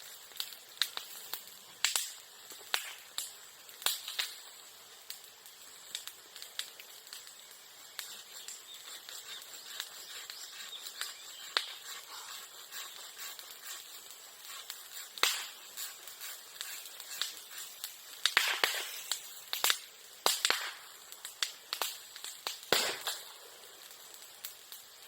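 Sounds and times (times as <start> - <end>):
bonfire crackling: 0.0 - 25.0
bamboo bursting bangs: 8.0 - 23.4.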